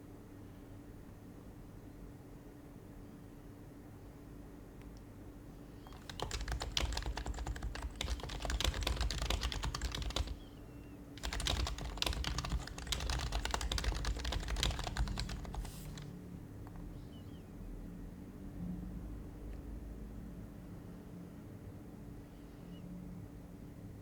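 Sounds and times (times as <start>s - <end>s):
keyboard typing: 5.9s - 10.5s, 11.2s - 16.1s.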